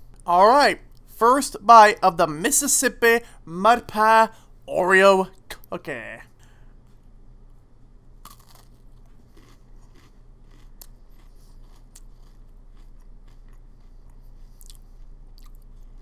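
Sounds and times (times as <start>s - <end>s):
steady low hum: 0.0s - 16.0s
person chewing cookie crunching: 8.2s - 16.0s.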